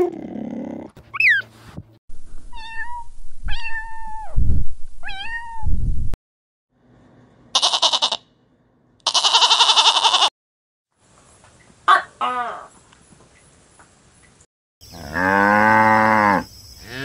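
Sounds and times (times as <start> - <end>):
cat meowing: 2.5 - 4.3, 5.0 - 5.7.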